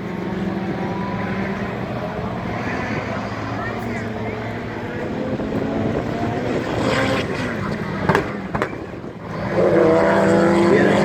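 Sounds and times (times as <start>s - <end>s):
race car engine: 0.0s - 11.0s
engine pops: 7.3s - 9.2s.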